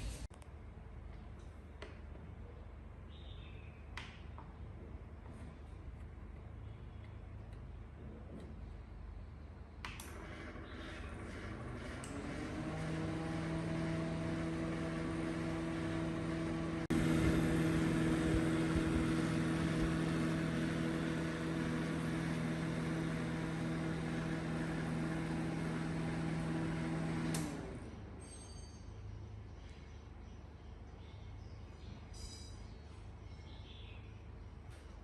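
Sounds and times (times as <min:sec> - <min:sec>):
microwave oven humming: 0:10.0 - 0:28.2.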